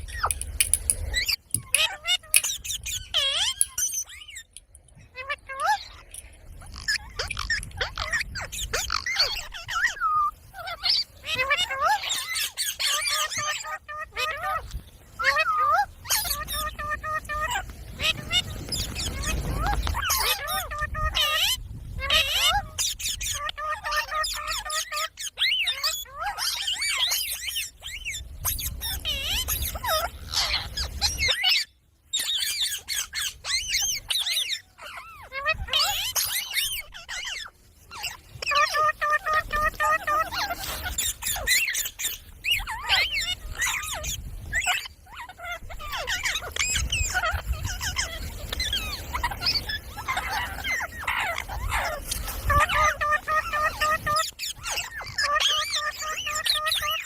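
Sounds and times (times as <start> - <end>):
parrot calling and chattering: 0.0 - 14.5, 22.1 - 57.0
parrot squawk: 28.8 - 57.0.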